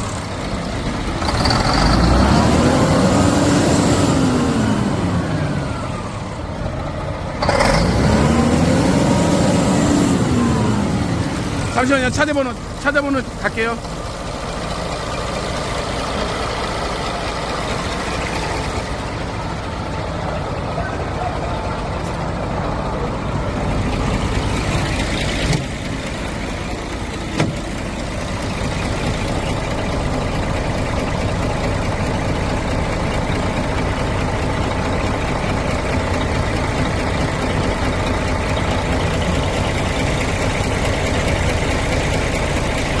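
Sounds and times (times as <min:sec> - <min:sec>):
vehicle engine idling: 0:00.0 - 0:43.0.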